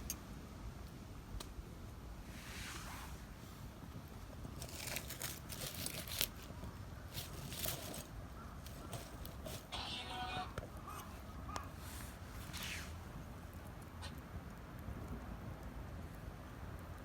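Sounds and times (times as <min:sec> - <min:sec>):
rustling: 0:02.2 - 0:13.8
crinkling crackling clicks: 0:03.9 - 0:09.7.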